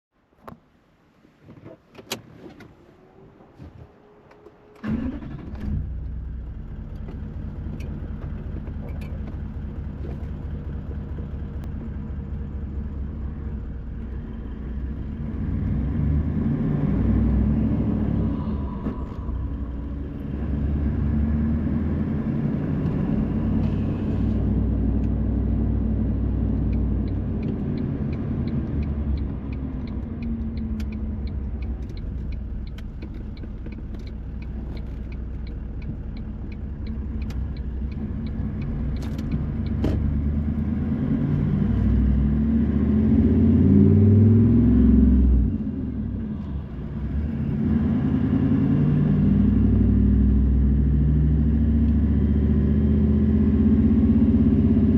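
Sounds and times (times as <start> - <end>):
car engine and road noise: 0.1 - 54.9
turn signal ticking: 26.0 - 42.4.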